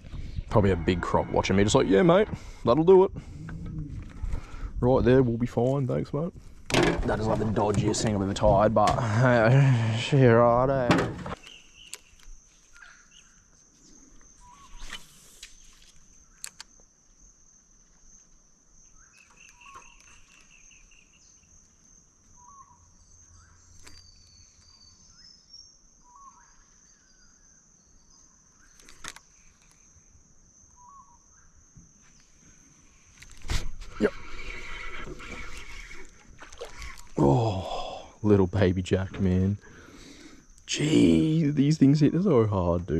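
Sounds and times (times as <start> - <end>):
bird trill: 18.8 - 29.5, 30.7 - 31.6.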